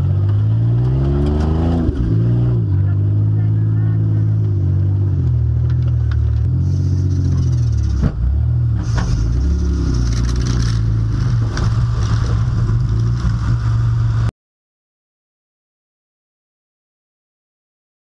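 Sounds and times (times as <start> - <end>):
car engine running loud: 0.0 - 14.3.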